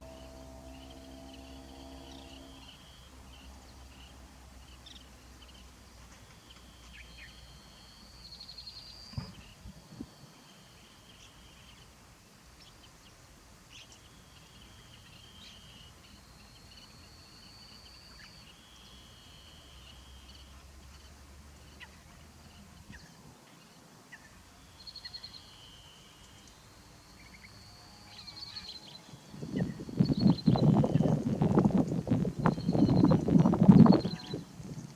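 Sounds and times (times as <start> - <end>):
birds trilling: 27.3 - 34.8
wind buffeting microphone: 29.0 - 34.9.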